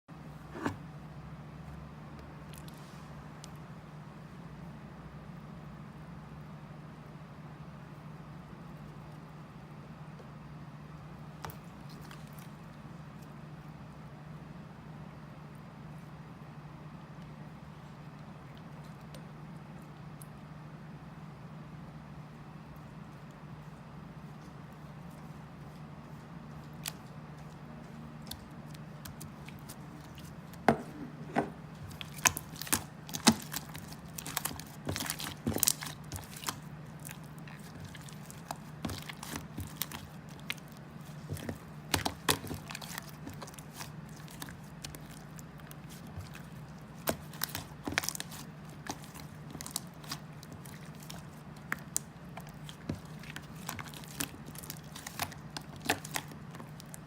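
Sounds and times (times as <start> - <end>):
steady low hum: 0.1 - 57.0
crunching and chewing: 11.0 - 13.8, 22.4 - 57.0.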